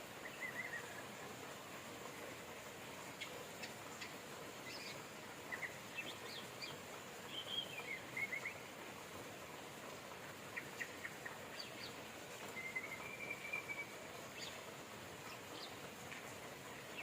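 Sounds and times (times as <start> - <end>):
rain hiss: 0.0 - 17.0.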